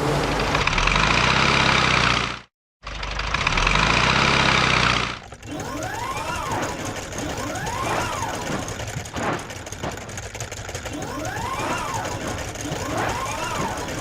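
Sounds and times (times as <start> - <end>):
cartoon truck engine: 0.0 - 14.0.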